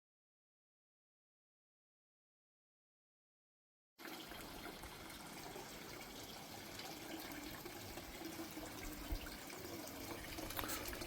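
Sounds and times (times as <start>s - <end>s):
water running into pond: 4.0s - 11.0s.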